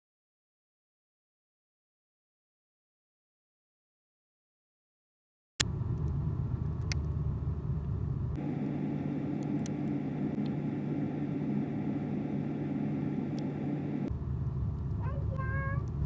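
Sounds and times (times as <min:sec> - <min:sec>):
refrigerator hum: 0:05.7 - 0:16.0.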